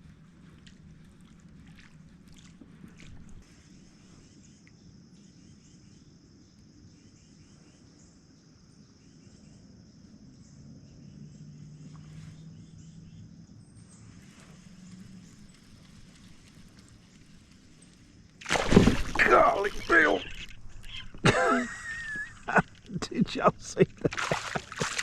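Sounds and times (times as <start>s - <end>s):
insects droning: 0.0s - 25.0s
low steady hum: 11.5s - 25.0s.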